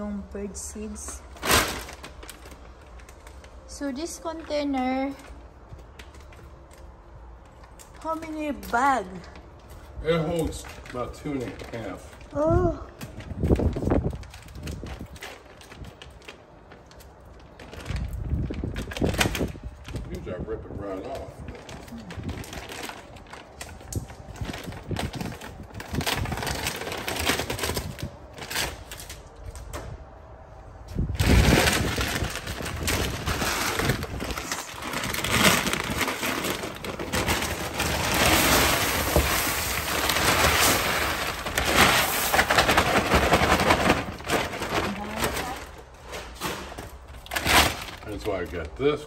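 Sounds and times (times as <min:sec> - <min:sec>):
paper bag crackling and rustling: 0:00.8 - 0:08.2, 0:09.4 - 0:29.6, 0:30.7 - 0:48.6.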